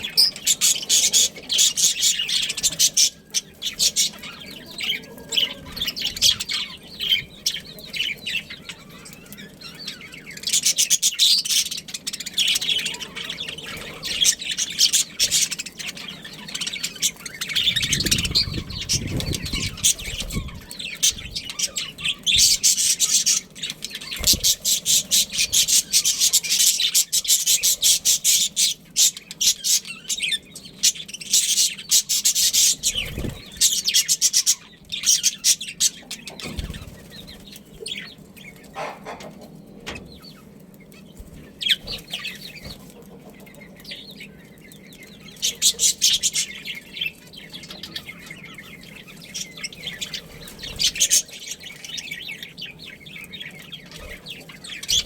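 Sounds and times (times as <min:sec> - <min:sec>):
budgies chattering and chirping: 0:00.0 - 0:55.0
low rumbling noise: 0:17.6 - 0:21.5.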